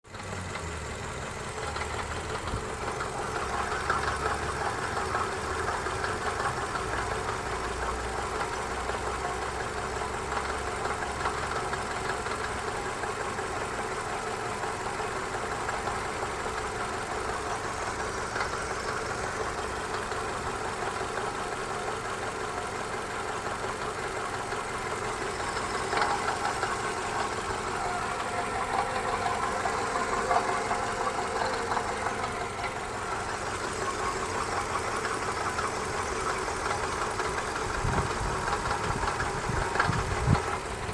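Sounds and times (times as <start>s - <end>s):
car engine running with knock: 0.0s - 40.9s.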